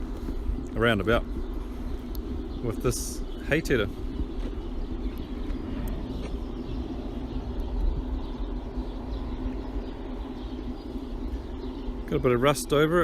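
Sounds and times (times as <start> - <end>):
birds chirping faintly: 0.0 - 13.0
constant hum: 0.0 - 13.0
low rumble: 0.0 - 13.0.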